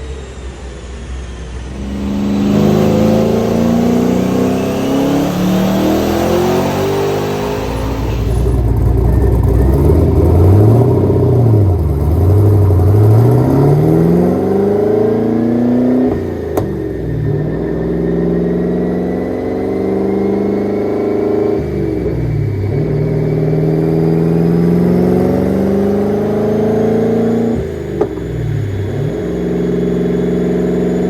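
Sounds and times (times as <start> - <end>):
engine full-throttle pull: 1.4 - 17.8.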